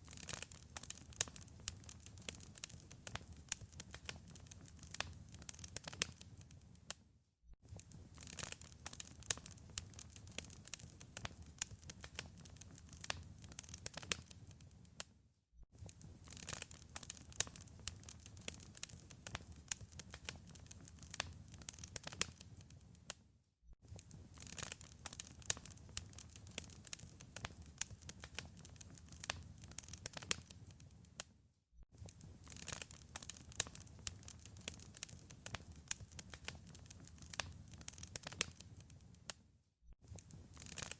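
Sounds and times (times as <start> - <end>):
wood fire crackling: 0.0 - 7.0, 7.7 - 15.1, 15.8 - 23.1, 23.9 - 31.3, 32.0 - 39.2, 40.1 - 40.9.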